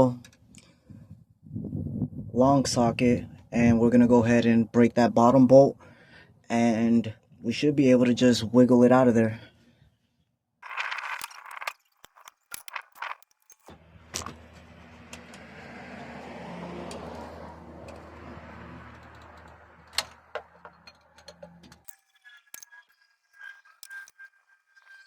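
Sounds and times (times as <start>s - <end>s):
hand tools clinking on metal: 10.6s - 13.7s, 21.9s - 24.2s.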